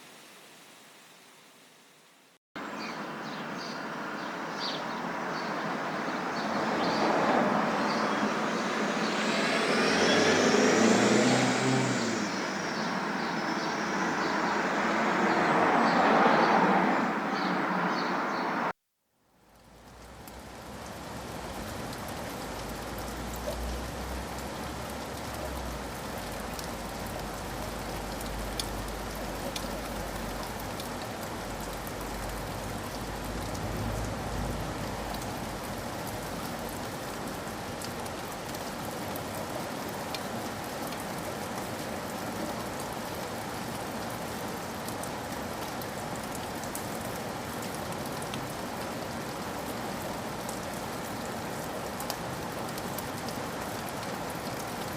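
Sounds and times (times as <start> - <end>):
steady rain falling: 0.0 - 18.7, 19.3 - 54.9.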